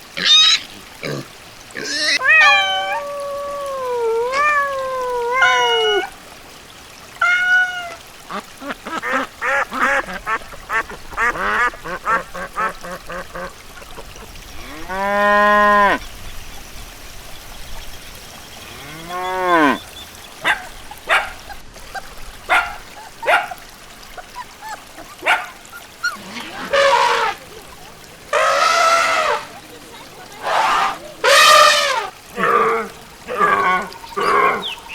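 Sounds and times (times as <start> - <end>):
farm animal calls: 24.2 - 27.6, 28.3 - 29.6, 30.3 - 32.6.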